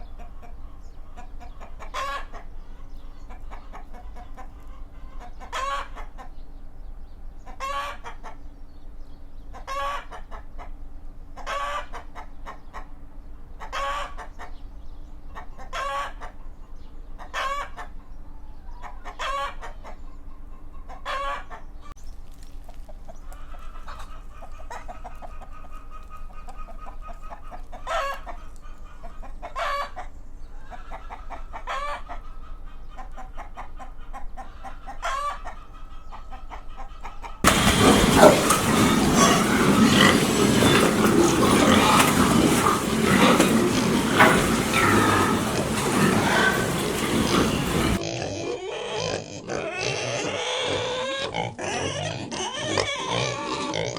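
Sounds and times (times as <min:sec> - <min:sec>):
chickens clucking: 0:00.0 - 0:06.5, 0:07.4 - 0:08.5, 0:09.5 - 0:14.6, 0:15.3 - 0:21.9, 0:22.6 - 0:48.1
faint low hum: 0:37.5 - 0:48.0.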